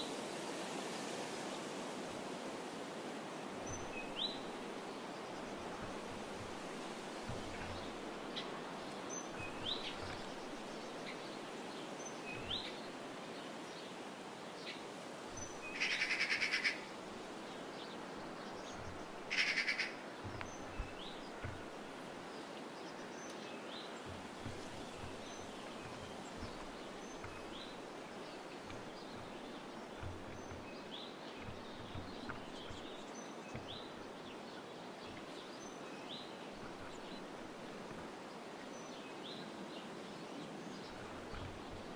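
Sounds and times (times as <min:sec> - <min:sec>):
songbirds chirping: 0:00.0 - 0:41.9
steady background hiss: 0:00.0 - 0:41.9
harsh rapid bird rattles: 0:15.3 - 0:17.4, 0:18.1 - 0:22.3.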